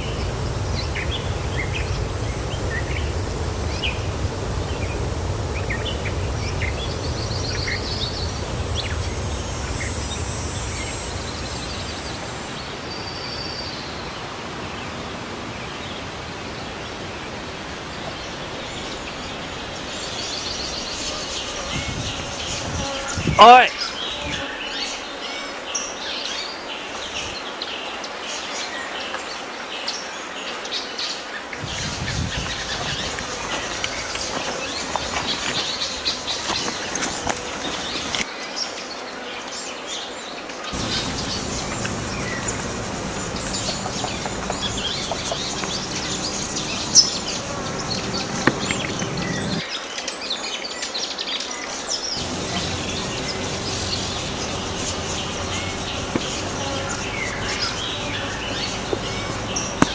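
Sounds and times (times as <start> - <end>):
low steady drone: 0.0 - 12.6, 40.8 - 49.6, 52.2 - 59.9
insects: 0.0 - 59.9
birds chirping and calling: 40.8 - 49.6, 52.2 - 59.9.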